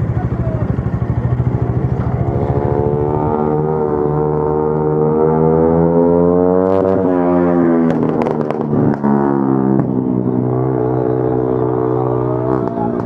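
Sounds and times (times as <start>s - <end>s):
motorcycle engines revving: 0.0s - 13.0s
sharp exhaust crackles: 7.2s - 13.0s.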